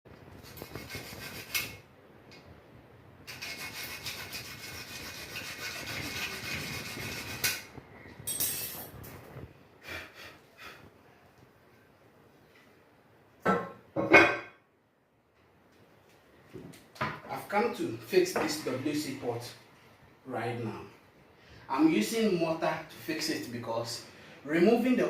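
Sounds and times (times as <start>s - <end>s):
hard tool scraping gritty surface: 0.4s - 1.8s, 3.3s - 7.7s.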